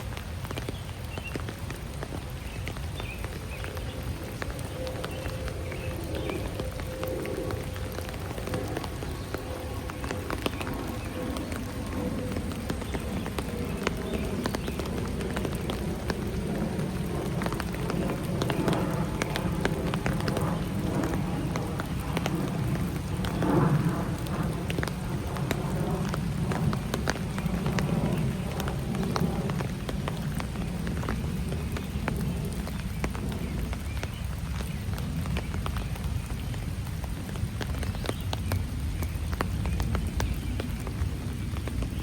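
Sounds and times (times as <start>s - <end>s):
rain falling: 0.0s - 42.0s.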